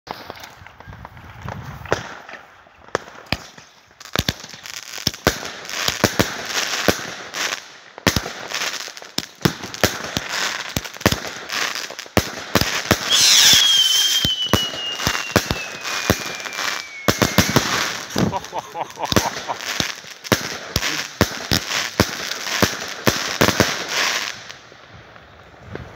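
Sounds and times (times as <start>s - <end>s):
firework bangs and crackles: 0.1s - 25.9s
firework whistle falling in pitch: 13.0s - 19.2s.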